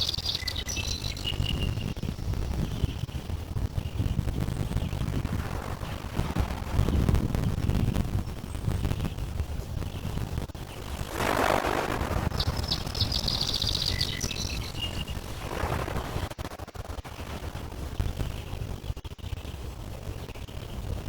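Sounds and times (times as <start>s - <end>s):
bird twittering: 0.0s - 3.2s, 10.7s - 16.3s
steady low rumble: 0.0s - 21.0s.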